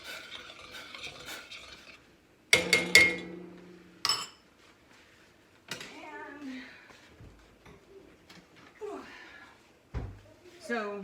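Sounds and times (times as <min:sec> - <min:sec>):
loud metal clanks: 0:02.6 - 0:04.4
sharp metal clink: 0:02.6 - 0:04.4
spoon stirring rice in metal pot: 0:02.6 - 0:04.4.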